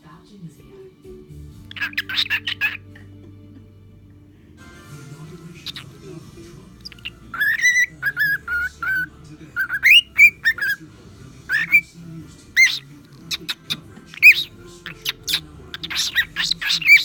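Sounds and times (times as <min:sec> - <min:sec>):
cockatiel whistling: 0:01.7 - 0:03.0, 0:05.6 - 0:06.0, 0:06.8 - 0:10.8, 0:11.5 - 0:11.9, 0:12.6 - 0:17.0.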